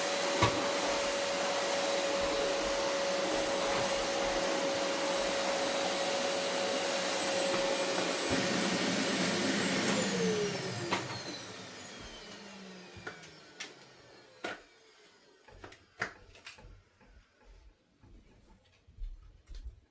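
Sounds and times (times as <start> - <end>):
vacuum cleaner running: 0.0 - 17.2
motor winding down whine: 8.1 - 15.4.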